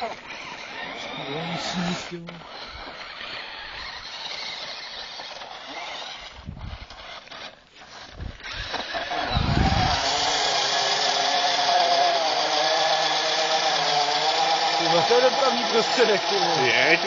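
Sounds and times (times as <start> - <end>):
toy car electric motor whine: 0.0 - 17.0.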